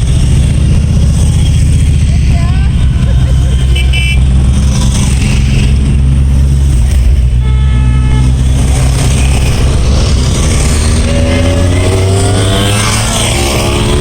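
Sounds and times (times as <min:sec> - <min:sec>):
motorcycles passing: 0:00.0 - 0:14.0
horn toot: 0:03.6 - 0:04.3, 0:07.4 - 0:09.8
motorcycle revving up: 0:08.3 - 0:14.0.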